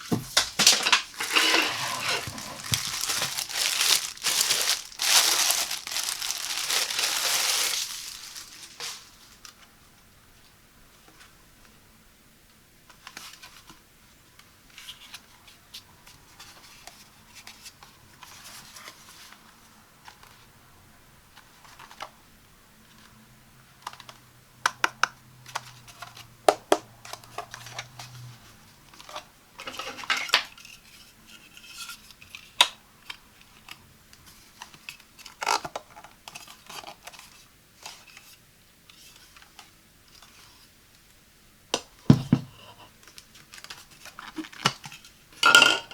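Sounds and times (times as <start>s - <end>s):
scratching and rustling packaging: 0.0s - 9.7s, 34.2s - 38.4s, 43.0s - 45.2s.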